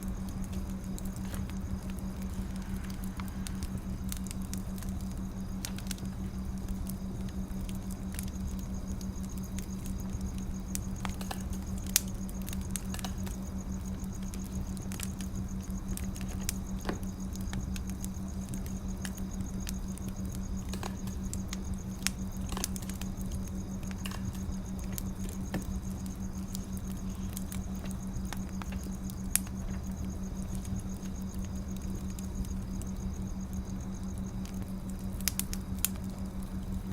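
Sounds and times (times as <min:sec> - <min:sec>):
fire crackling and popping: 0:00.0 - 0:36.9
fire rumbling: 0:00.0 - 0:36.9.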